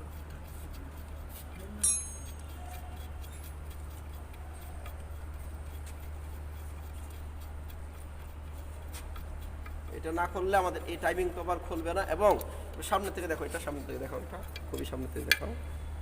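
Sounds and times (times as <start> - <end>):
steady low hum: 0.0 - 16.0
ring spanner clicking on bolts: 1.8 - 2.6.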